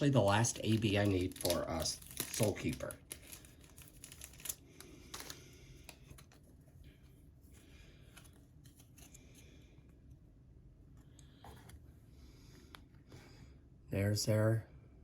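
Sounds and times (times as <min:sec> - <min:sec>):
packaging being handled: 0:00.0 - 0:06.6.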